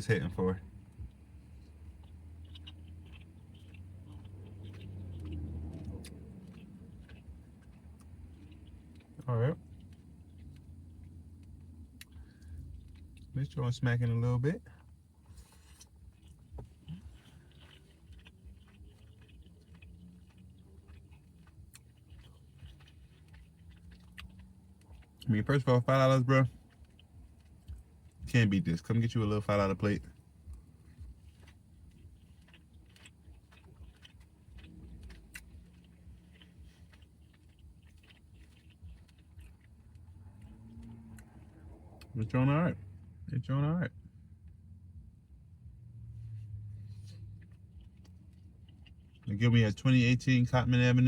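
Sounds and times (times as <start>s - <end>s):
soft mouth clicks and smacks: 0.0s - 42.2s, 44.4s - 49.7s
person chewing food: 0.0s - 43.1s, 44.3s - 50.4s.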